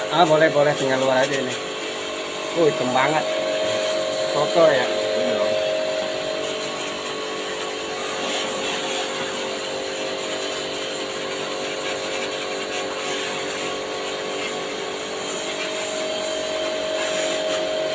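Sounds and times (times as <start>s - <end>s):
small electric motor humming: 0.0s - 17.9s
water jet hissing: 0.0s - 17.9s.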